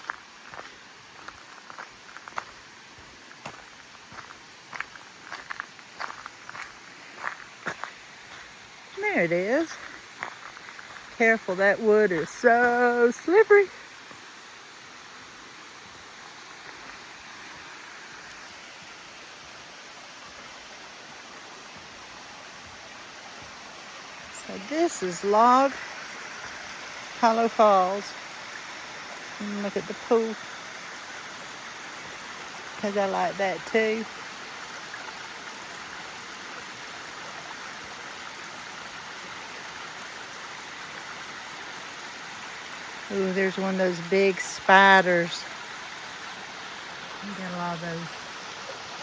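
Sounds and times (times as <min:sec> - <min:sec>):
waterfall splashing into a pool: 0:13.7 - 0:43.1, 0:44.7 - 0:49.0.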